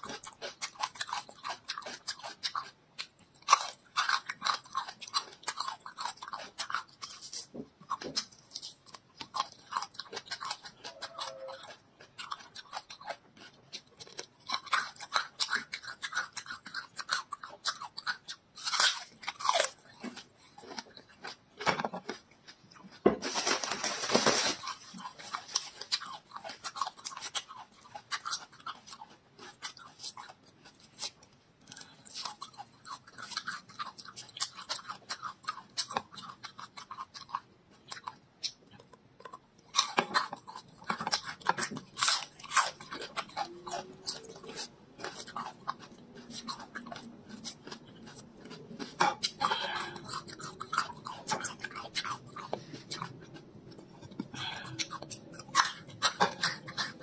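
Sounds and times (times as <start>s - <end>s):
chewing crunchy garlic: 0.0s - 57.0s
garlic skins crackling peeled: 23.2s - 38.6s.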